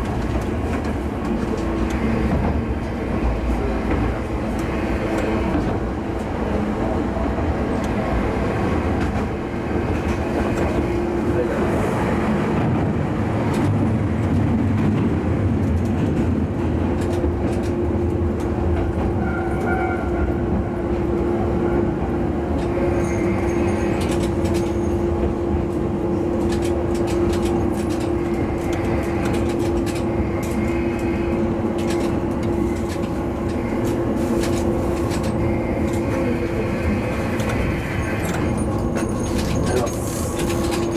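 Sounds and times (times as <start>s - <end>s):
railcar engine drone: 0.0s - 40.9s
wheels clicking over rail joints: 22.6s - 40.9s.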